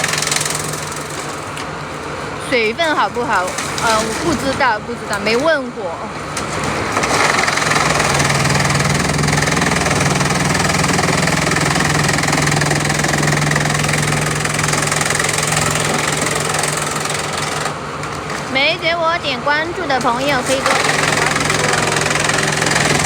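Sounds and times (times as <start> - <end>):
engine drone: 0.0 - 23.0
machine chipping bamboo: 0.0 - 23.0.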